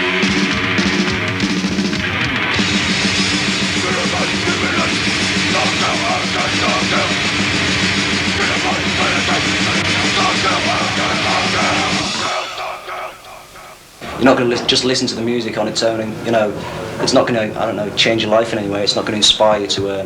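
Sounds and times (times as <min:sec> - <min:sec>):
bass guitar: 0:00.0 - 0:12.3
distorted guitar: 0:00.0 - 0:15.7
fast pounding drums: 0:00.0 - 0:16.5.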